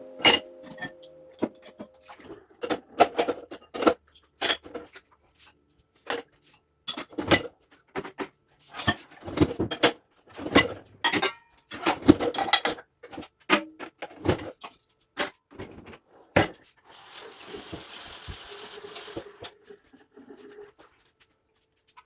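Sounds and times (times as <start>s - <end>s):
tap running: 17.3s - 19.4s.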